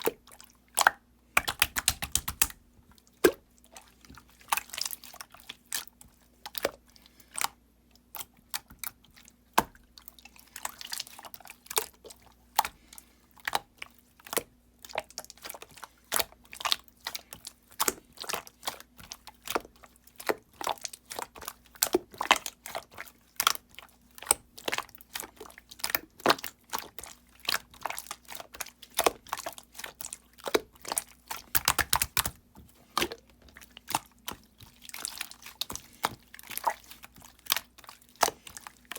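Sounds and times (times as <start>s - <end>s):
slime clicking and popping: 0.8s - 2.6s, 30.4s - 33.2s.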